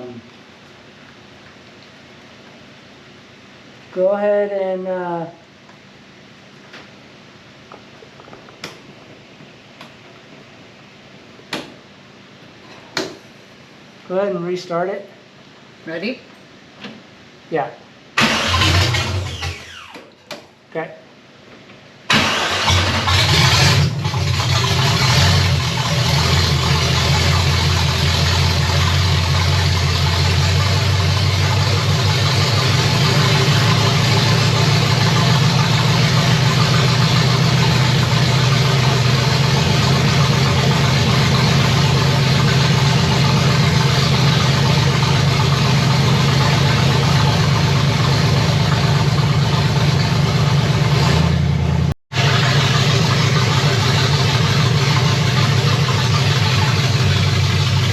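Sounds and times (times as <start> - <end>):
car engine starting and idling: 18.2 - 20.0, 22.1 - 57.9.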